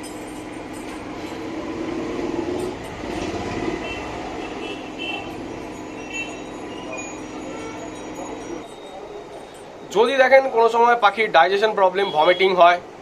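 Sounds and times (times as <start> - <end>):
background traffic noise: 0.0 - 13.0
vehicle passing: 1.1 - 7.5.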